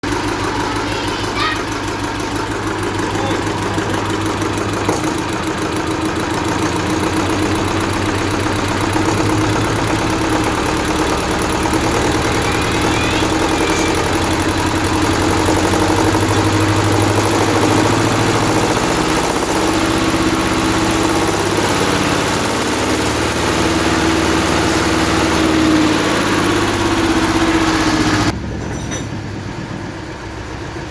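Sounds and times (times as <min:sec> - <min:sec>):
tractor diesel engine revving: 0:00.0 - 0:30.9.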